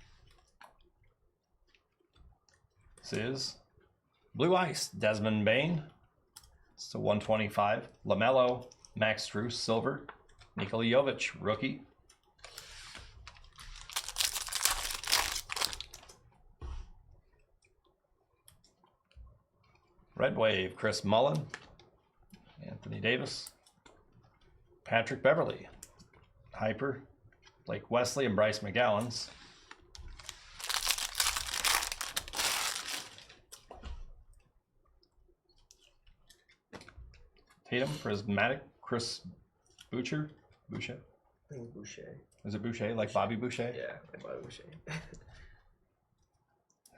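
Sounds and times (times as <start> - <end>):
foil wrapper tearing and crinkling: 13.6 - 16.1, 30.0 - 33.4.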